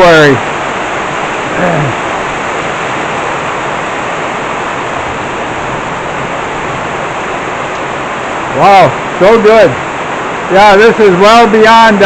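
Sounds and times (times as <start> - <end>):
heavy rain hissing: 0.0 - 12.0
low voice: 1.5 - 2.0.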